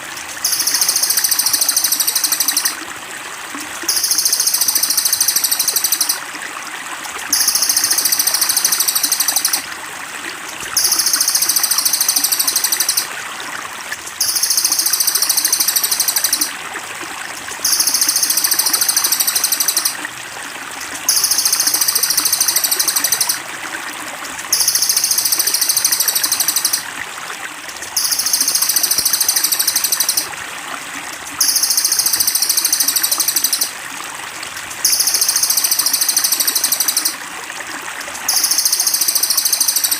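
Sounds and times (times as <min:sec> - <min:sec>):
trickling water: 0:00.0 - 0:39.9
high buzzy bird trill: 0:00.4 - 0:02.8, 0:03.9 - 0:06.2, 0:07.3 - 0:09.7, 0:10.8 - 0:13.1, 0:14.2 - 0:16.5, 0:17.6 - 0:20.0, 0:21.1 - 0:23.4, 0:24.5 - 0:26.8, 0:28.0 - 0:30.3, 0:31.4 - 0:33.7, 0:34.8 - 0:37.2.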